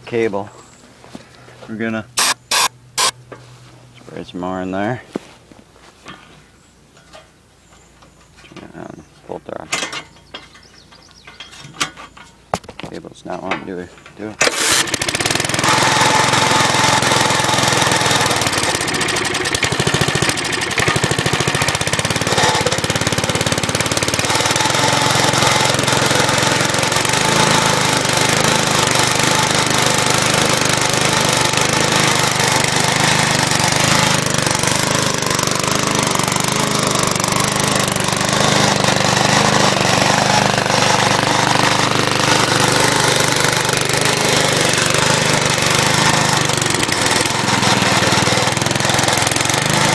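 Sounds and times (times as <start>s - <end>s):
lawn mower engine running: 2.2s - 3.2s, 14.4s - 49.9s.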